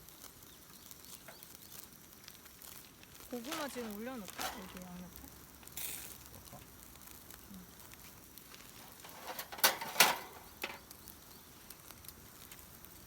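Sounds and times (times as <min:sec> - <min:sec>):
cooking gear clattering: 0:03.4 - 0:05.0, 0:08.7 - 0:10.9.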